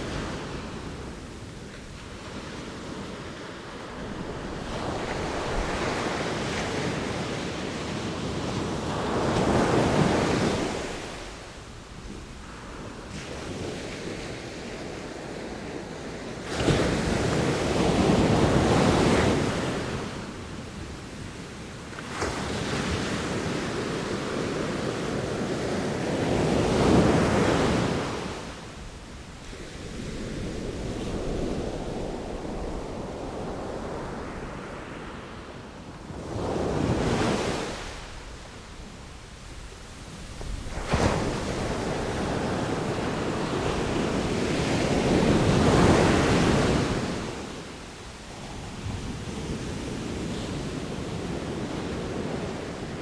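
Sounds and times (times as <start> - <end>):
sea waves breaking on shore: 39.5 - 53.0.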